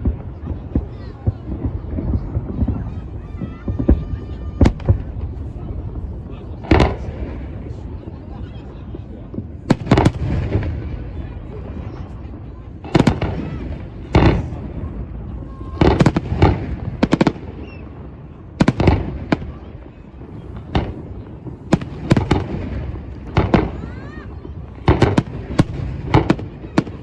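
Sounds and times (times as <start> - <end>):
rumble of distant fireworks: 0.0 - 27.0
sharp firework bangs: 9.4 - 11.2, 12.8 - 27.0.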